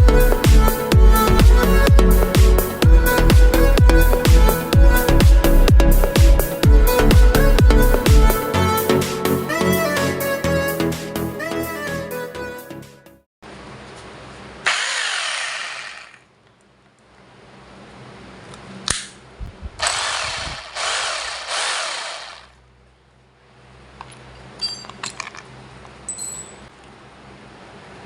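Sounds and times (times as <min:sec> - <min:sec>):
rotary hammer motor whine: 0:14.6 - 0:16.3, 0:19.8 - 0:22.6.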